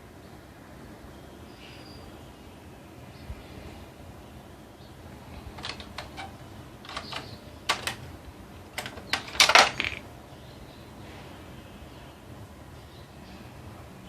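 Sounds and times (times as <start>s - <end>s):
small plastic parts clicking and clattering: 5.5s - 10.1s.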